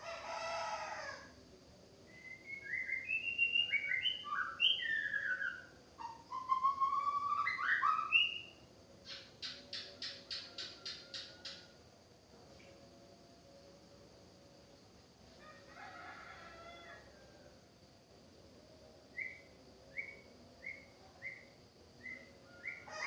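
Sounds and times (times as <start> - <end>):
rooster crowing: 0.0 - 1.4, 10.0 - 11.8, 15.4 - 17.6, 22.4 - 23.0
bird whistling song: 2.1 - 11.6, 19.2 - 22.9.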